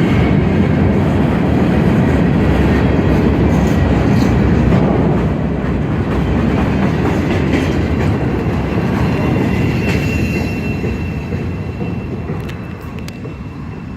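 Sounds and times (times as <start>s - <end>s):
freight train wheels rumbling on rail: 0.0s - 13.9s
train wheel squeal: 6.2s - 13.9s.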